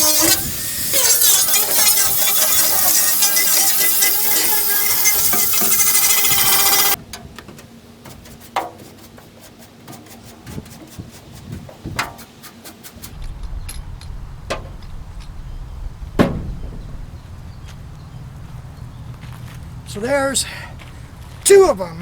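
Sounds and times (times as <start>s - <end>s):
angle grinder grinding steel: 0.0s - 7.0s
knocks: 13.1s - 18.6s.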